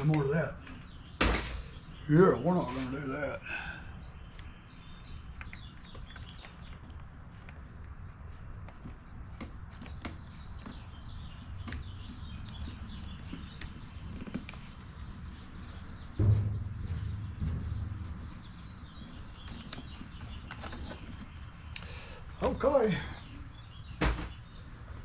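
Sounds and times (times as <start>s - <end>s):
birds chirping: 0.0s - 25.0s
loud low rumble: 16.2s - 19.4s
low steady rumble: 16.2s - 19.8s.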